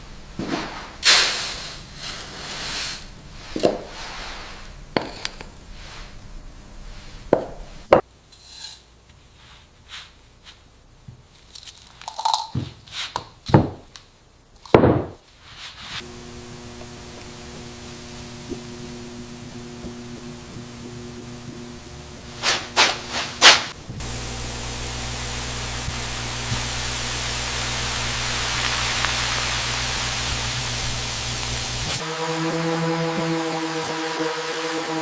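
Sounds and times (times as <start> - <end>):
steady drone of held pitches: 16.0 - 35.0.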